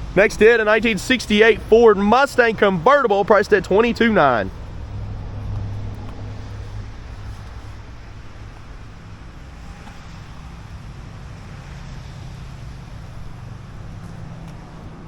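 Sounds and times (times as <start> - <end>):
constant low hum: 0.0 - 15.0
traffic rumble: 0.0 - 15.0.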